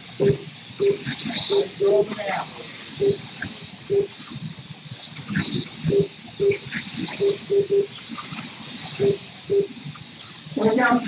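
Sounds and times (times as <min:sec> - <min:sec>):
short electronic beeps: 0:00.2 - 0:02.1, 0:03.0 - 0:04.1, 0:05.1 - 0:08.0, 0:08.9 - 0:09.8.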